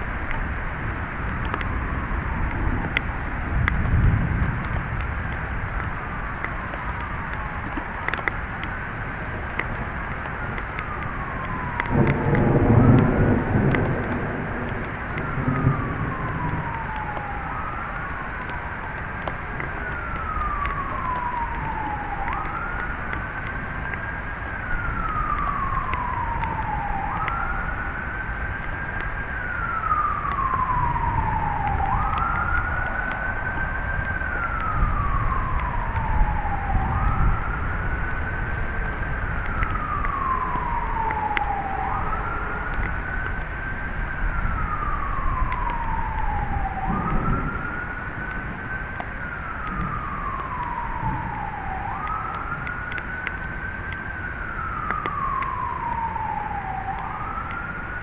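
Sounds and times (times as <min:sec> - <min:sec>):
rain: 0:00.0 - 0:58.0
siren wailing: 0:00.0 - 0:58.0
storm wind: 0:00.0 - 0:58.0.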